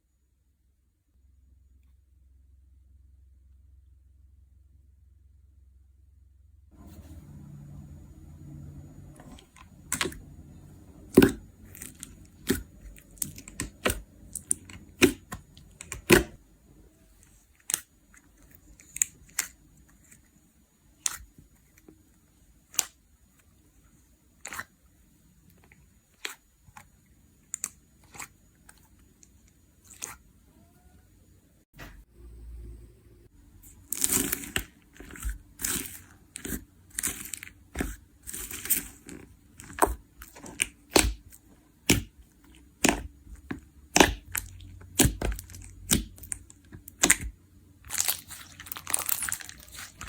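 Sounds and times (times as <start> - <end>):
slime clicking and popping: 11.1 - 16.4, 33.9 - 50.0.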